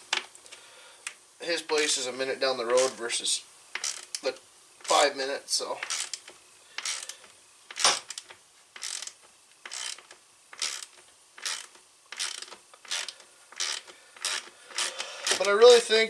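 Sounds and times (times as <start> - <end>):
hand ratchet driver ratcheting: 3.7 - 5.0, 5.8 - 15.9.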